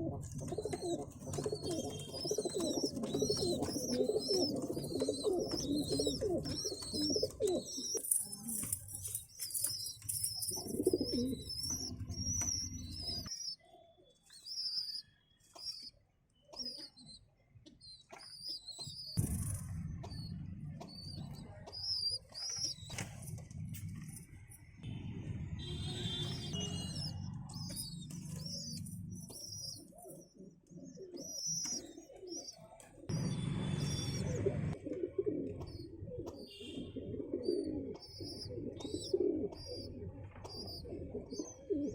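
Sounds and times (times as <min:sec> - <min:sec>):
pigeons cooing: 0:00.0 - 0:13.4, 0:26.0 - 0:41.9.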